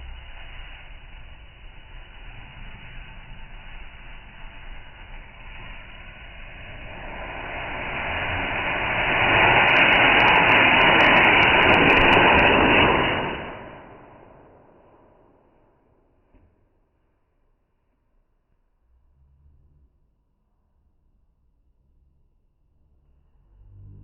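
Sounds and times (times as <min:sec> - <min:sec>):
firework rocket rushing: 0:00.0 - 0:16.5.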